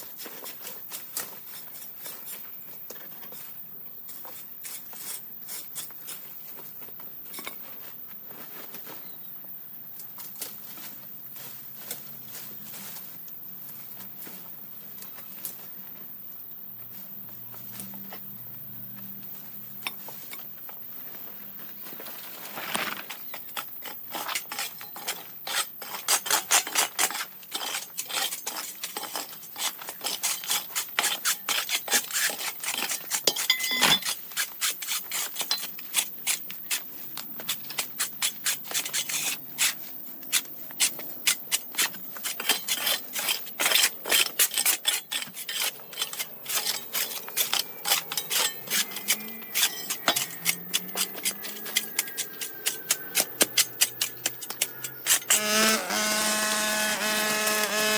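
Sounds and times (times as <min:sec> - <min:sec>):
stiff brush scrubbing: 0:37.5 - 0:55.4.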